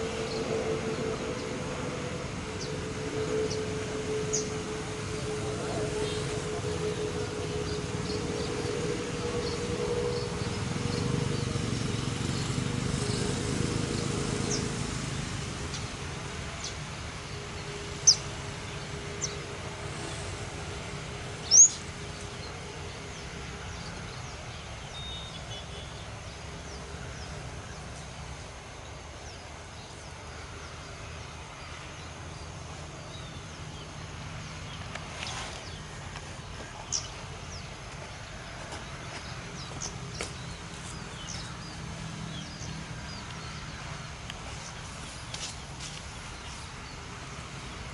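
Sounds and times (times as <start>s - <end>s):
distant engine rumble: 0.0s - 47.9s
high bird chirps: 21.5s - 21.8s.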